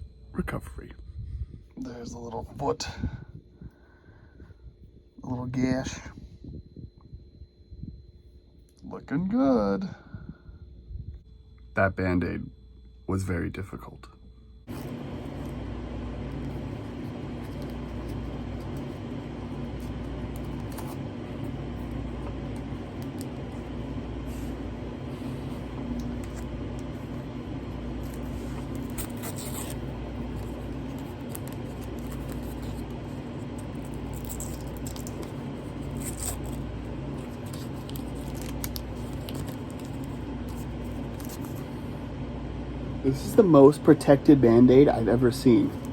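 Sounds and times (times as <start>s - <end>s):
low mechanical hum: 0.0s - 45.9s
pulsing rumble: 14.1s - 43.3s.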